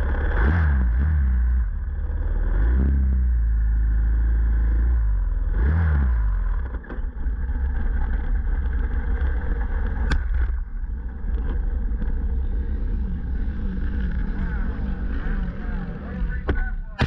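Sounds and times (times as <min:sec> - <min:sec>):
motorcycle engine running slowly: 0:00.0 - 0:05.6, 0:06.2 - 0:17.0.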